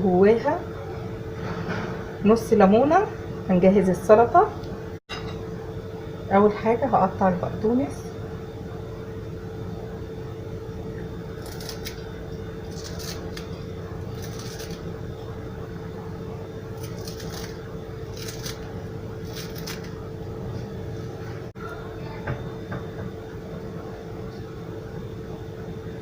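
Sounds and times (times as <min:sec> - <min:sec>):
steady background hum: 0:00.0 - 0:26.0
knife cutting parsley: 0:11.4 - 0:12.0, 0:12.7 - 0:14.9, 0:16.8 - 0:20.0.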